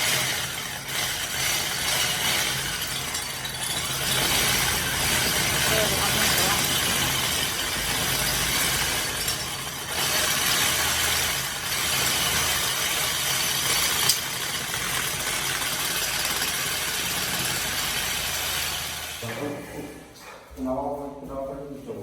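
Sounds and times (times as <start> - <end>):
engine-like running hum: 3.9 - 13.1.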